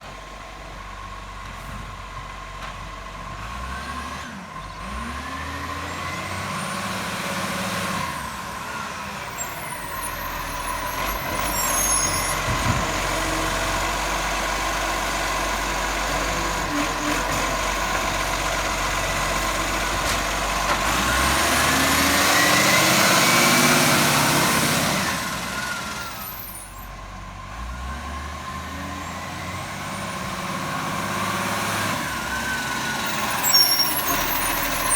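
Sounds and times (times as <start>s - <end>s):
garbage truck engine and machinery: 0.0s - 34.9s.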